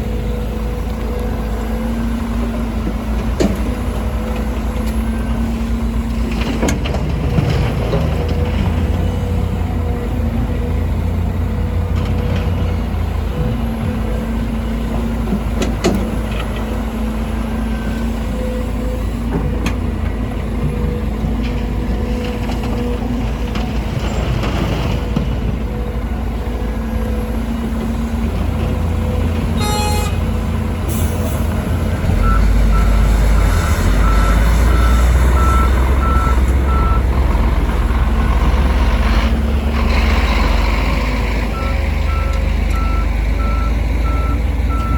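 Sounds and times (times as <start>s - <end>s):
heavy diesel engines running: 0.0s - 44.9s
reversing beeper: 32.2s - 37.1s, 41.5s - 44.9s.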